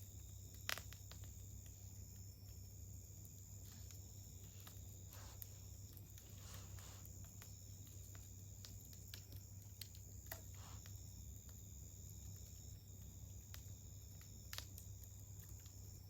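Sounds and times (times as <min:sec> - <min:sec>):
campfire crackling and popping: 0:00.0 - 0:16.0
soft hisses: 0:03.5 - 0:08.3, 0:10.3 - 0:11.1.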